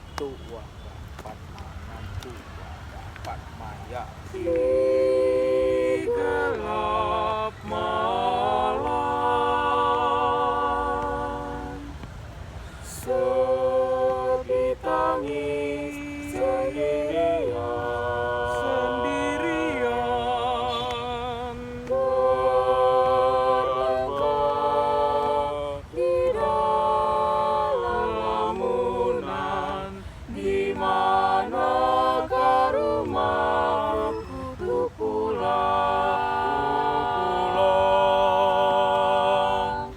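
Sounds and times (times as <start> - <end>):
a cappella singing: 4.2 - 39.9
singer breathing: 12.4 - 12.9.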